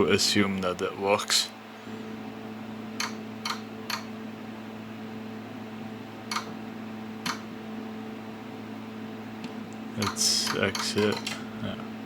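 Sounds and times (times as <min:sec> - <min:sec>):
electronic equipment hum: 0:00.0 - 0:12.0
oscilloscope keys clicking: 0:10.0 - 0:11.4.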